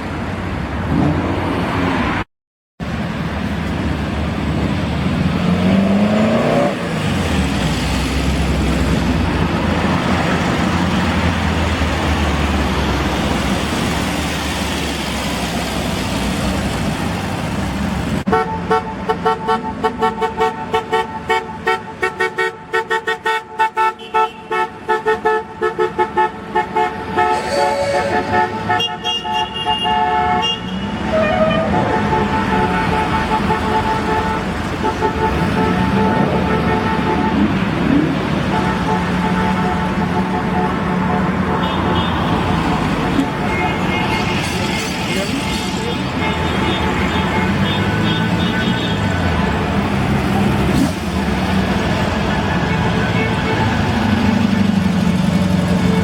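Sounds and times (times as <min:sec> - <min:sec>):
cars driving past: 0:00.0 - 0:18.3, 0:26.3 - 0:30.0
car horns tooting: 0:18.3 - 0:42.5, 0:43.1 - 0:49.6, 0:52.4 - 0:54.2.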